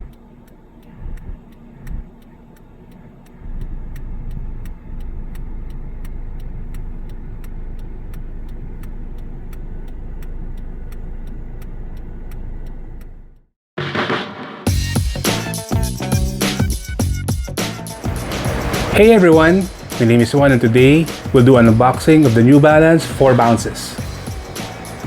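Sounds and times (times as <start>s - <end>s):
car engine rumbling: 0.0s - 13.4s, 17.7s - 25.0s
regular ticking: 0.0s - 13.5s, 14.7s - 25.0s.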